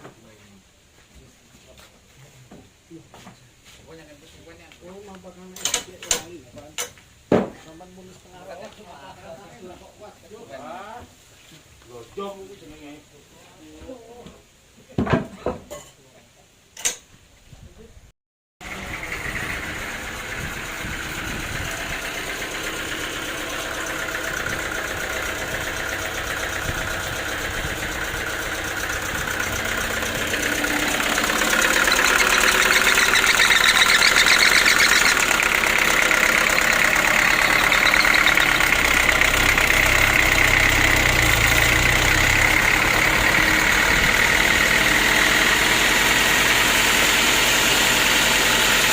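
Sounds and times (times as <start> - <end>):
sawmill engine running: 18.6 - 48.9.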